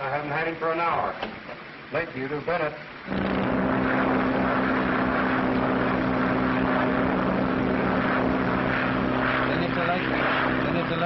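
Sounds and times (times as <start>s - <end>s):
propeller airplane engine droning: 3.0s - 11.0s
rushing noise: 3.1s - 11.0s.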